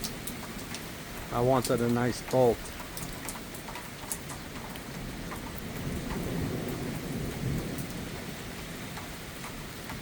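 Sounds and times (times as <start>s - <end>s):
steady rain: 0.0s - 10.0s
distant thunder rumbling: 2.8s - 10.0s.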